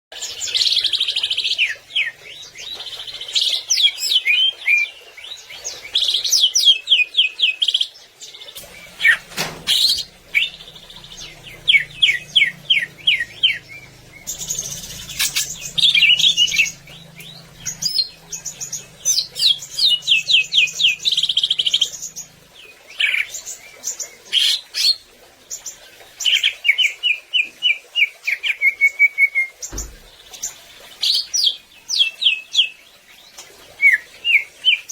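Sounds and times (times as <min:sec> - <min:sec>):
bird singing trills and whistles: 0:00.6 - 0:22.4.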